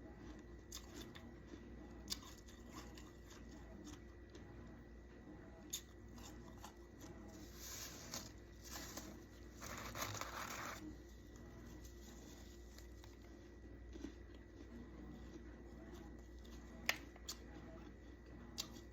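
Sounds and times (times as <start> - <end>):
faint steady hum: 0.0 - 18.9
frost scraping and crunching: 6.0 - 17.4.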